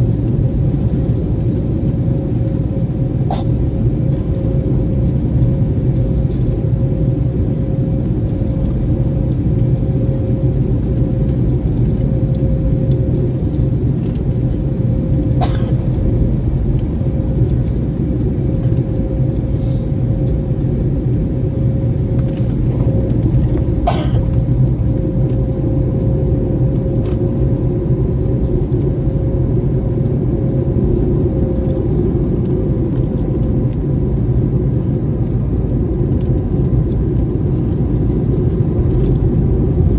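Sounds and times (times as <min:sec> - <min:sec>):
airliner cabin rumble: 0:00.0 - 0:39.9
steady hum: 0:20.6 - 0:26.3.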